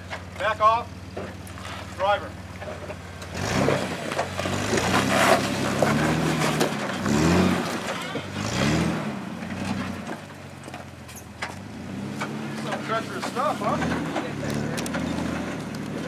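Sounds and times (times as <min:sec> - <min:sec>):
engine revving: 0:00.0 - 0:10.3, 0:11.4 - 0:16.0
gritty scraping on rock: 0:01.5 - 0:10.3, 0:12.1 - 0:16.0.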